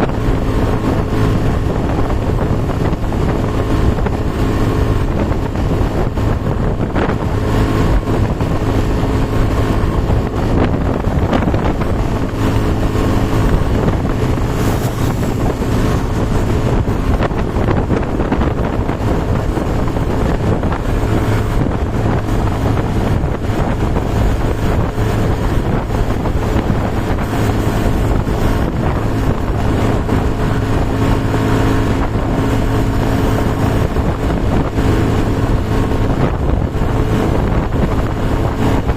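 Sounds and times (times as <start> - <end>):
vehicle engine humming: 0.0 - 38.9
wind buffeting microphone: 0.0 - 38.9.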